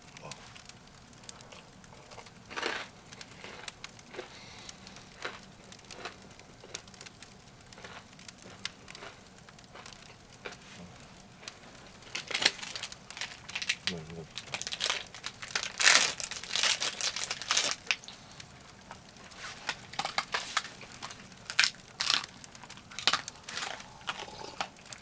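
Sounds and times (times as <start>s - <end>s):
firewood crackling: 0.0s - 25.0s.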